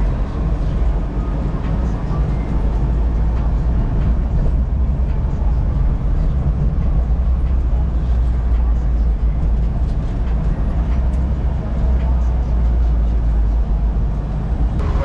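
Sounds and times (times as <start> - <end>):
car engine and road drone: 0.0 - 15.0.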